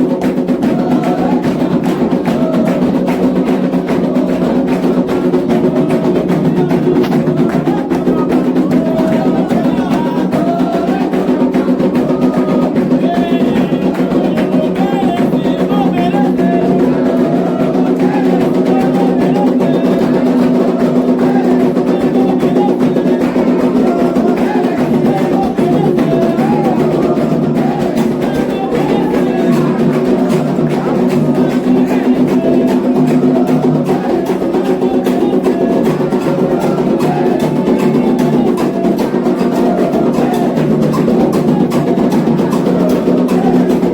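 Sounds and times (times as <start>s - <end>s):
group singing: 0.0s - 43.9s
hand drums fast rhythm: 0.0s - 43.9s.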